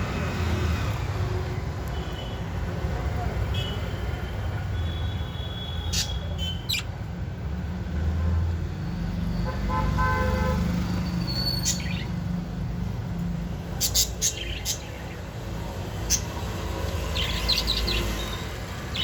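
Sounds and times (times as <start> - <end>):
low rumble of traffic: 0.0 - 19.0
budgerigars chirping: 5.9 - 6.9, 13.8 - 15.1.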